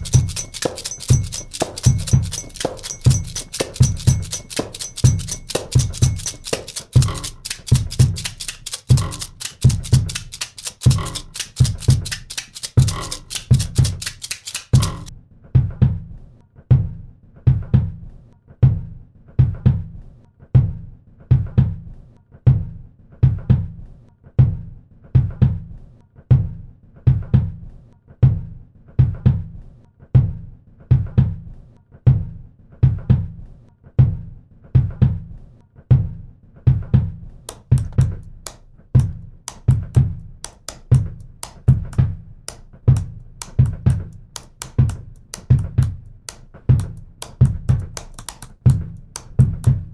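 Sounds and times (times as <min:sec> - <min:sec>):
hi-hat ticks: 0:00.0 - 0:15.1, 0:37.5 - 0:49.9
bass drum thumps: 0:37.7 - 0:49.9.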